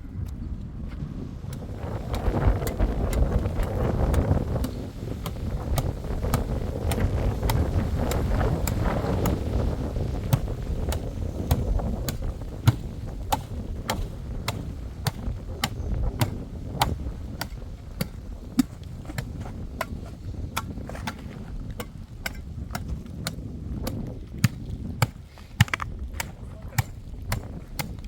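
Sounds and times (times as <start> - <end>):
hand tool knocking: 10.3 - 22.9.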